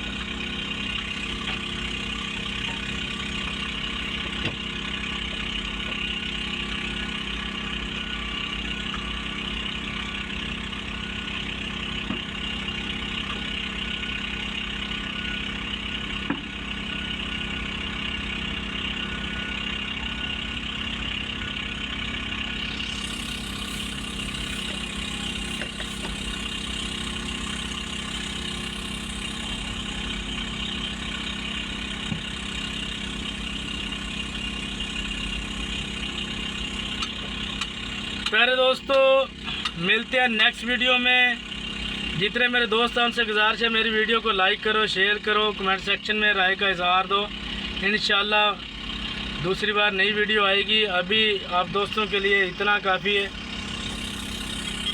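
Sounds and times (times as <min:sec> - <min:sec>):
heavy machinery diesel engines: 0:00.0 - 0:54.9
high hiss: 0:22.6 - 0:32.0, 0:53.6 - 0:54.9.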